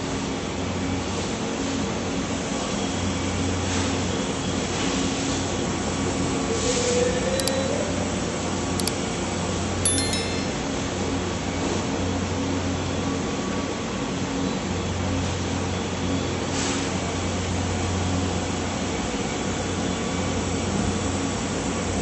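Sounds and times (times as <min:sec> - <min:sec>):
machine motor and fan whir: 0:00.0 - 0:09.8, 0:10.8 - 0:22.0
short high beeps: 0:07.4 - 0:07.8, 0:09.9 - 0:11.0.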